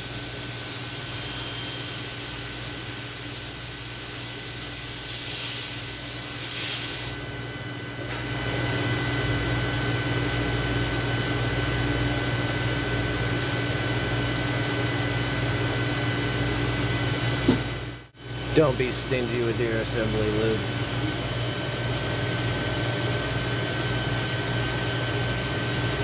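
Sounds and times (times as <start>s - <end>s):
spray hiss: 0.0s - 7.2s.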